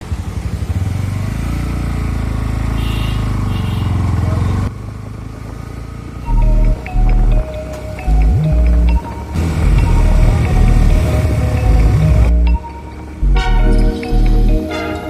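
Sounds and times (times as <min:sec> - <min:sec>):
motorcycle engine running: 0:00.0 - 0:07.4, 0:08.1 - 0:12.5.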